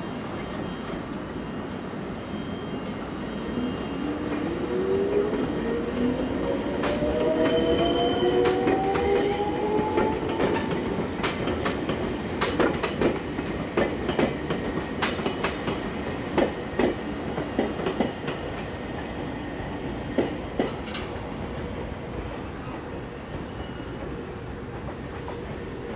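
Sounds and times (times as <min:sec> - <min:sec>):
train wheel squeal: 0:00.0 - 0:11.2, 0:22.4 - 0:25.9
train wheels clicking over rail joints: 0:08.4 - 0:19.1, 0:20.0 - 0:21.7.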